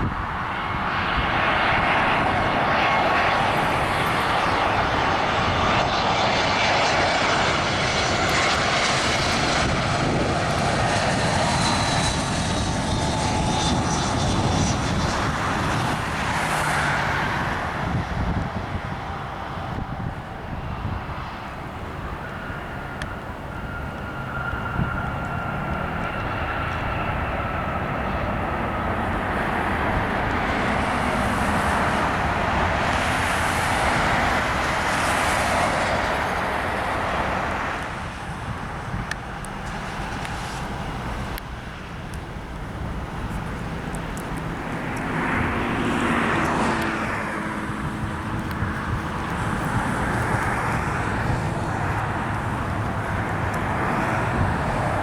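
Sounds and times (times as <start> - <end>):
jet engine whine: 0.0 - 55.0.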